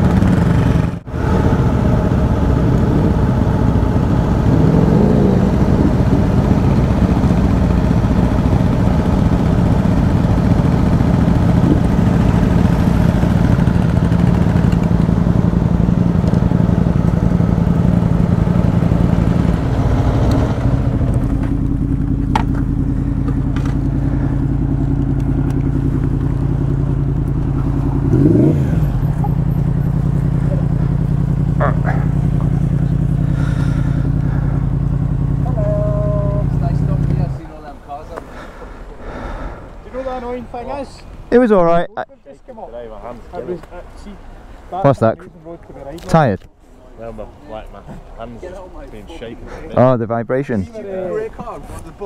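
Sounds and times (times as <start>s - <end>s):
motorcycle engines idling: 0.0s - 52.0s.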